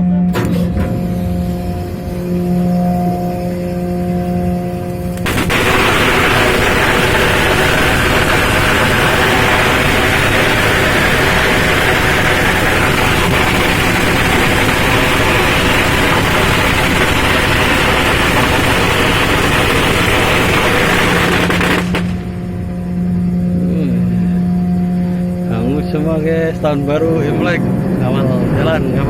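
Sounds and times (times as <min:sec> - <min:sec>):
boat engine running: 0:00.0 - 0:29.0
loud even hiss: 0:05.2 - 0:22.5.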